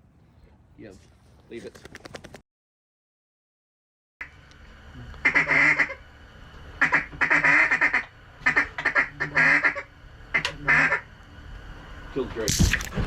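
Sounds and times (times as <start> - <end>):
ducks quacking rapidly: 5.2 - 6.0, 6.8 - 11.1.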